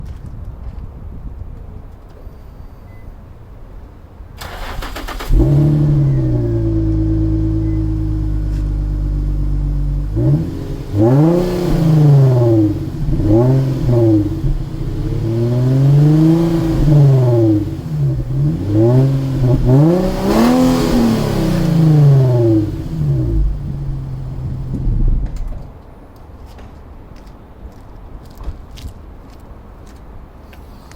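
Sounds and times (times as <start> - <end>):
car engine idling and revving: 2.9 - 25.6.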